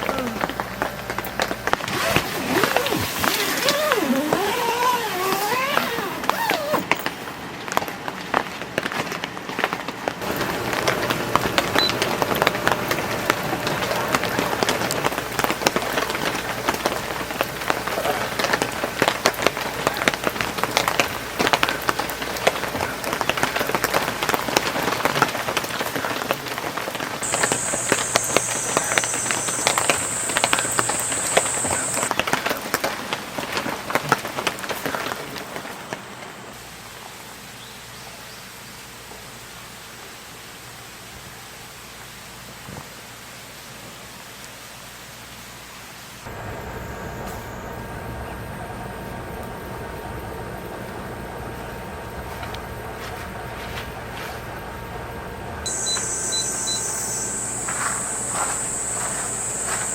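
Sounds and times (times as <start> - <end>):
heavy rain on a tent: 0.0 - 47.0, 55.6 - 59.9
thin high tone: 27.2 - 32.1, 55.7 - 59.9.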